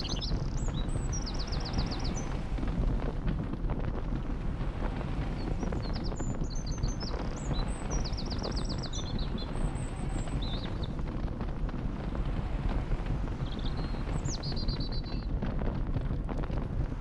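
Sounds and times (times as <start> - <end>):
bird trill: 0.0 - 2.4, 5.4 - 10.9, 13.5 - 15.3
small birds chirping: 0.0 - 3.1, 4.4 - 15.5
steady low rumble: 0.0 - 17.0.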